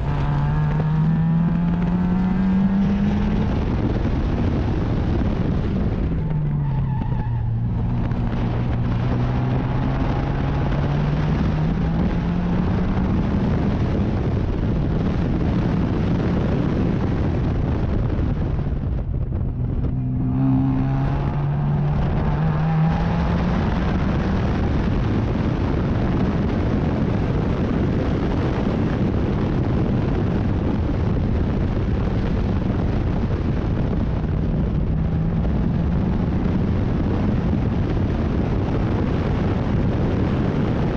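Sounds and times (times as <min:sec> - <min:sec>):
racing car engine revving: 0:00.0 - 0:16.9, 0:18.0 - 0:27.9
wind and road noise: 0:00.0 - 0:40.9.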